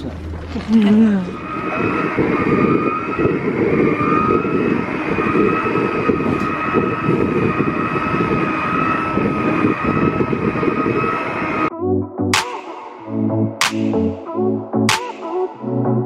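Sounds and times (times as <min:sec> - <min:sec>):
wind rumble on microphone: 0:00.0 - 0:11.7
electric motors whining: 0:00.2 - 0:11.7.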